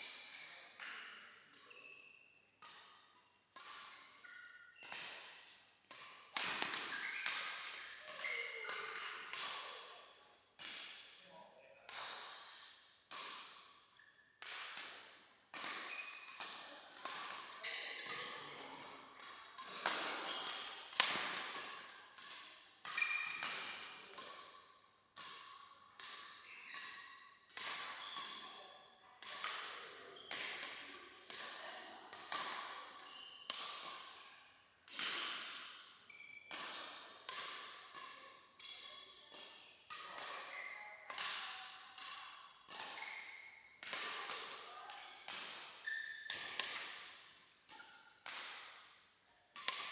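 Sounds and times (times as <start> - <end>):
rackets striking shuttlecock: 4.8 - 8.0, 15.6 - 24.3, 29.2 - 34.0, 45.3 - 48.9, 49.6 - 49.9.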